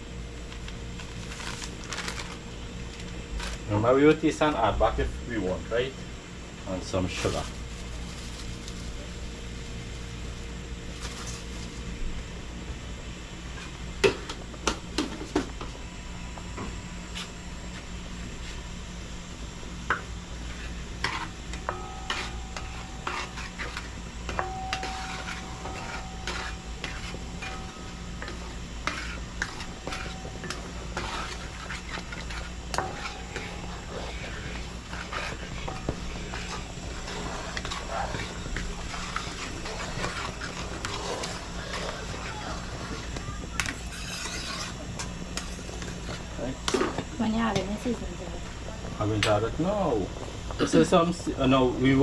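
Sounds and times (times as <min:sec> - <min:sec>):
spoon stirring in a pot: 0:19.9 - 0:47.7.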